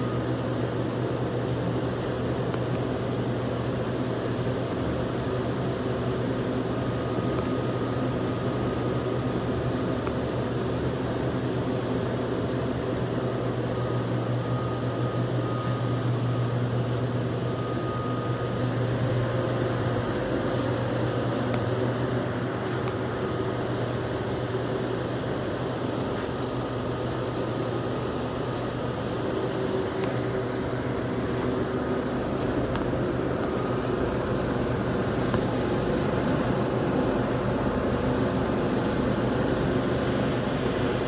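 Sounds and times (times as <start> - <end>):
faint high whine: 13.5 - 41.0
machinery humming: 13.5 - 41.0.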